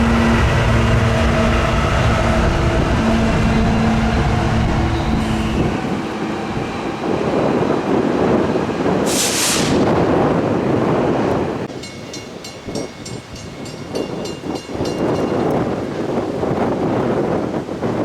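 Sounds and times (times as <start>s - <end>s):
diesel locomotive engine droning: 0.0s - 18.0s
freight cars rolling on rails: 0.0s - 18.0s
brief hiss: 9.1s - 9.8s.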